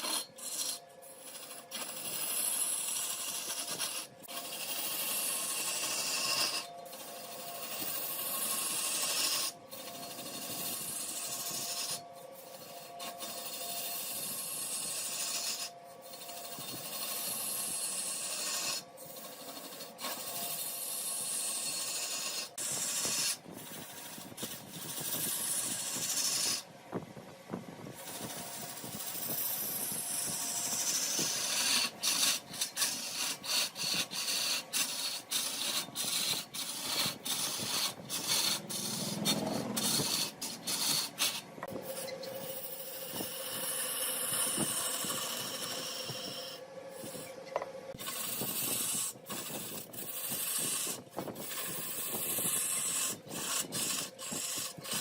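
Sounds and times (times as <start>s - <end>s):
lathe tool scraping wood: 0.0s - 26.7s, 27.9s - 55.0s.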